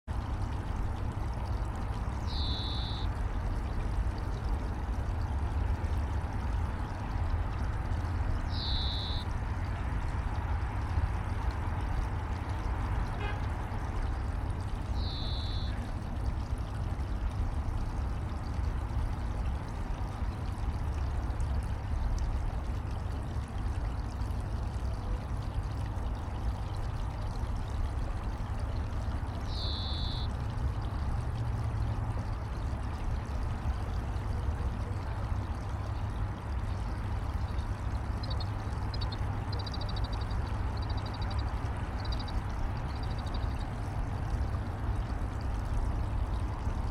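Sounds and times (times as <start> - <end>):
stream water rushing: 0.1 - 46.9
kingfisher call: 2.3 - 3.1, 8.5 - 9.2, 15.0 - 15.8, 29.5 - 30.3, 38.2 - 41.3.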